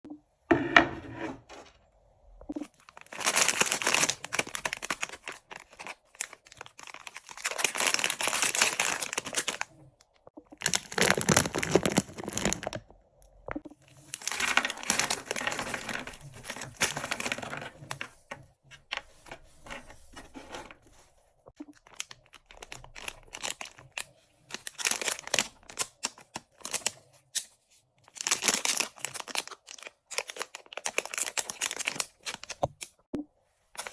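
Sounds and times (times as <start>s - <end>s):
wrappers tearing and crinkling: 2.6s - 9.7s, 10.6s - 12.8s, 14.0s - 18.3s, 21.8s - 27.5s, 28.1s - 32.9s.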